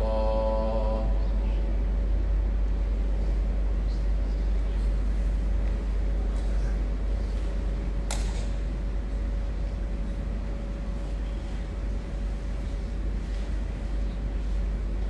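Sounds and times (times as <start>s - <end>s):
faint steady hum: 0.0s - 15.0s
low background rumble: 0.0s - 15.0s
sharp click: 8.1s - 8.5s.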